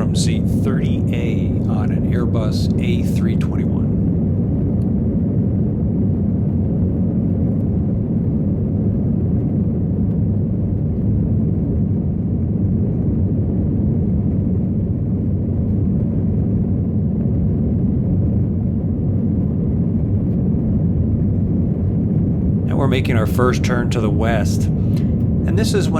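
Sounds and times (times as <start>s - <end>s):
jet engines rumbling: 0.0s - 25.9s
rushing air: 20.8s - 25.9s.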